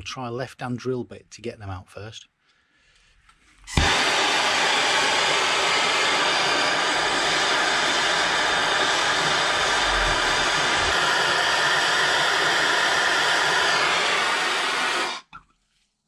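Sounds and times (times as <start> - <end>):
blowtorch flame burning: 3.7 - 15.4.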